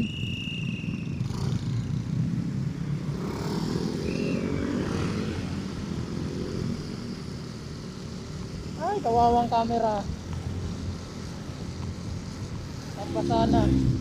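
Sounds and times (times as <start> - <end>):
motorcycle engine running: 5.2 - 14.0
wind rushing over microphone: 8.6 - 14.0.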